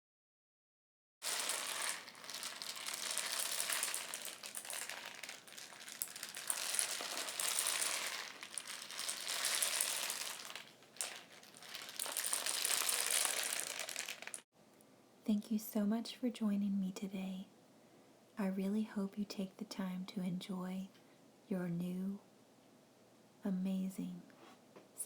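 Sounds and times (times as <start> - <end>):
rain stick rattling: 1.2 - 14.5.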